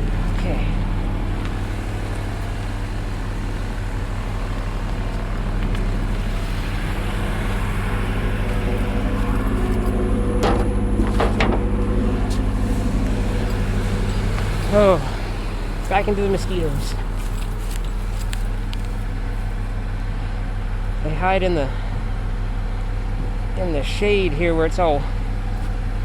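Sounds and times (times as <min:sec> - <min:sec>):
vehicle engine idling: 0:00.0 - 0:26.0
sharp knocks: 0:10.4 - 0:13.5.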